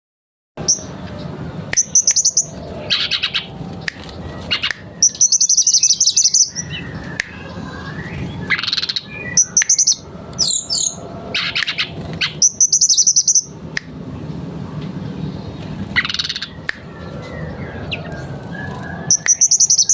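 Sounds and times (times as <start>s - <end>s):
steady low hum: 0.6s - 19.9s
bird singing high trills: 1.8s - 13.6s, 15.9s - 19.9s.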